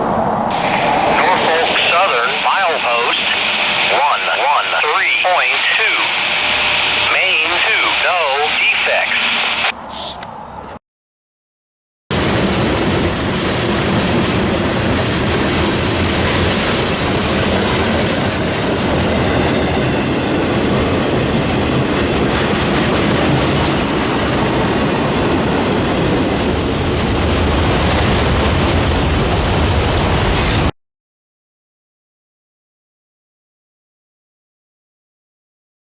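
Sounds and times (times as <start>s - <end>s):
train wheels rumbling on rails: 12.1s - 30.7s.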